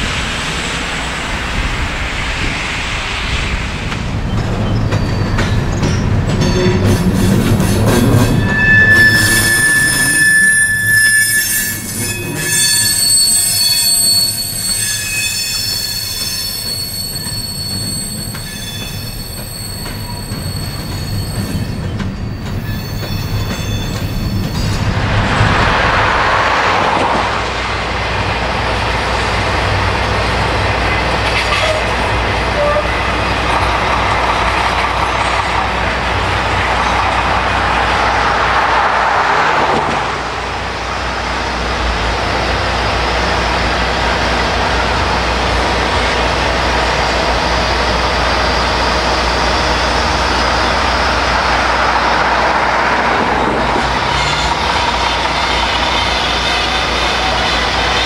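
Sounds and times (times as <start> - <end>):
broad rushing noise: 0.0 - 4.4, 24.0 - 31.3, 33.8 - 58.0
diesel locomotive rumbling: 0.0 - 58.0
train wheels squealing: 4.2 - 27.3, 31.3 - 35.9, 44.7 - 58.0.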